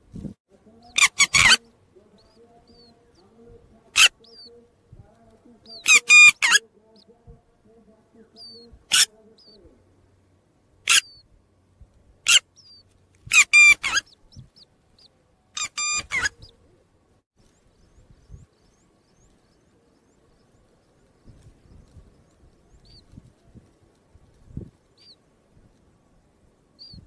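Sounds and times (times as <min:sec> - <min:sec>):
faint chick peeps: 0:00.7 - 0:09.8, 0:12.2 - 0:25.3
bird calling loudly: 0:00.8 - 0:03.3, 0:03.9 - 0:04.6, 0:05.6 - 0:07.1, 0:08.4 - 0:09.6, 0:10.8 - 0:11.2, 0:12.2 - 0:16.6
soft rustling: 0:18.8 - 0:26.7.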